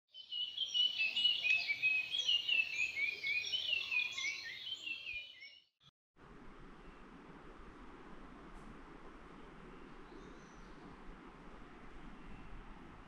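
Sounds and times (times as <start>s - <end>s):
small birds chirping: 0.2s - 5.7s, 9.6s - 11.1s.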